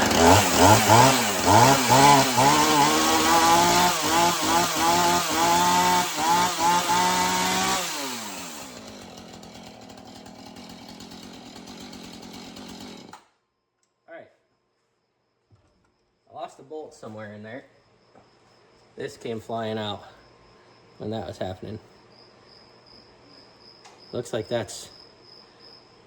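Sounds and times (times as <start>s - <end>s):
chainsaw engine revving: 0.0s - 13.3s.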